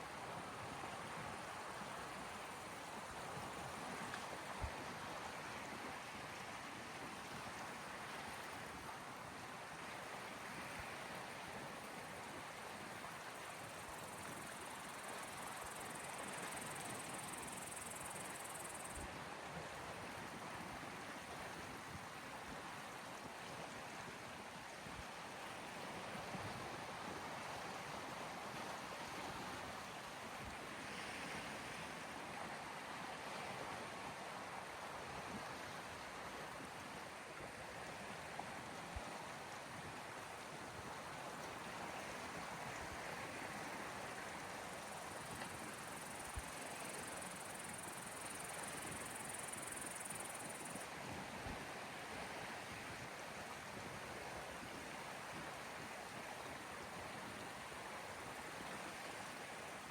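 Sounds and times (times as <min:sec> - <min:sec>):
faint high hiss: 0:13.1 - 0:19.1, 0:41.7 - 0:51.3.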